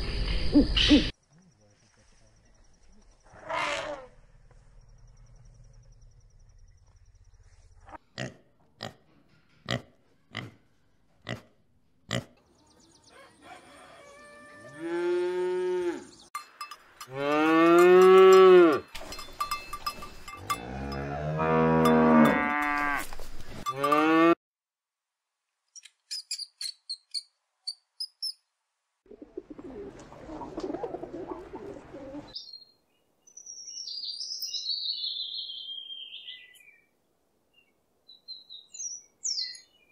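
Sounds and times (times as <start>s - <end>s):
cow mooing: 14.2s - 16.2s, 17.1s - 18.9s, 20.4s - 23.1s, 23.7s - 24.4s.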